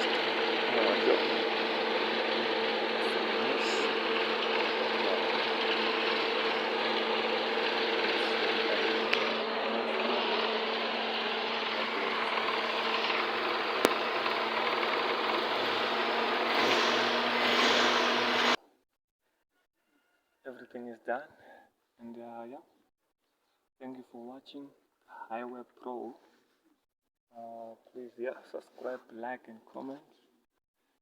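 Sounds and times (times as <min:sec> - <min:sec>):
car engine idling: 0:00.0 - 0:18.6.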